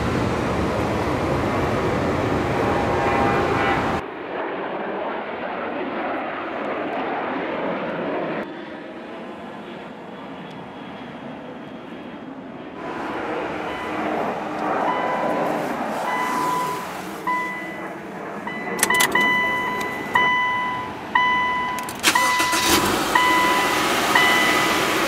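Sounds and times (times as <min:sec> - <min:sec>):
car engine running: 0:12.8 - 0:25.0.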